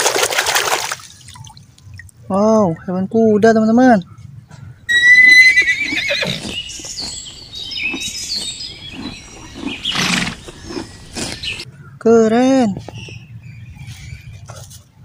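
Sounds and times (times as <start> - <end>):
horse neighing: 4.9 - 11.6.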